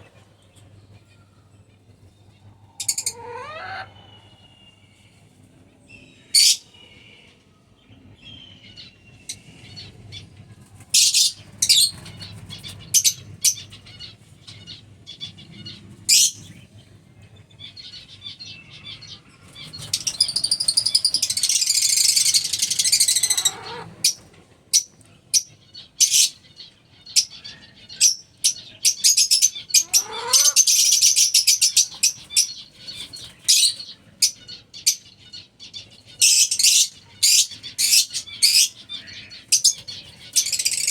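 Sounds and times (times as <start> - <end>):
lovebirds chirping: 11.0 - 40.9.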